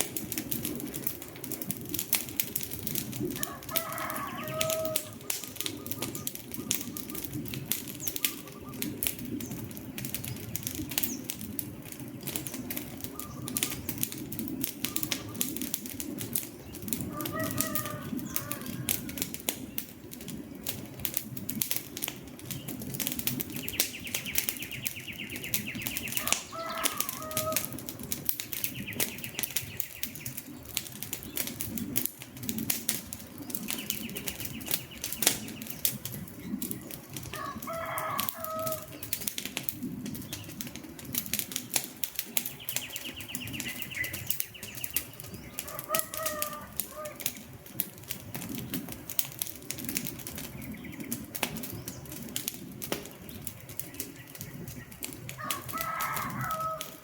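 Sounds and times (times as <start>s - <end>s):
low rush of flames: 0.0s - 57.0s
wood fire crackling and popping: 0.0s - 57.0s
short bird calls: 8.0s - 9.0s.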